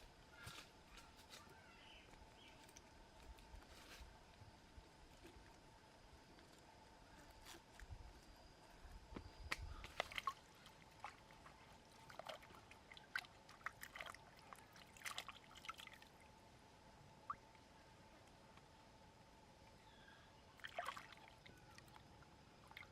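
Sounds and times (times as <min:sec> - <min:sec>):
water splashing and dripping: 0:09.5 - 0:16.2, 0:20.6 - 0:22.0.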